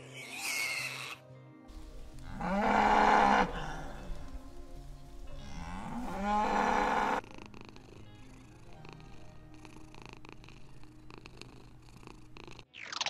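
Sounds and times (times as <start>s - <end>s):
cattle mooing: 2.0s - 4.7s, 5.3s - 7.3s.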